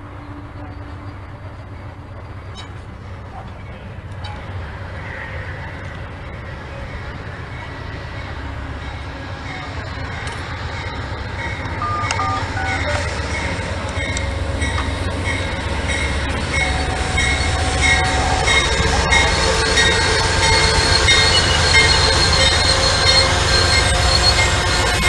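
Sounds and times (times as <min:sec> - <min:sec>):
train cars rumbling: 0:00.0 - 0:25.0
high wheel squeals: 0:11.8 - 0:25.0.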